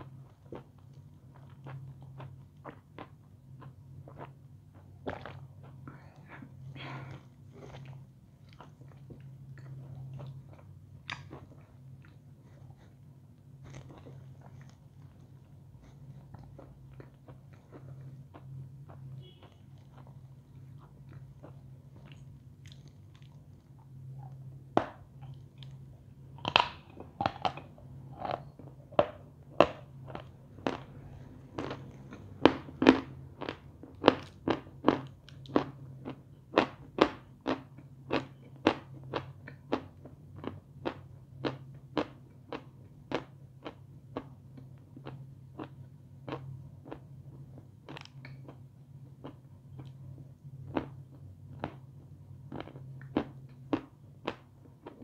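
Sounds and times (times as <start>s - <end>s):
faint low hum: 0.0s - 55.0s
crisp chewing crunches: 7.0s - 24.4s.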